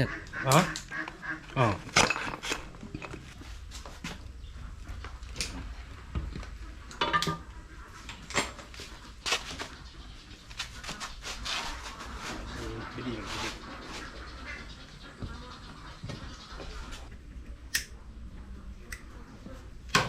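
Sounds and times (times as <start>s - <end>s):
tools and metal parts clinking: 1.9s - 3.4s.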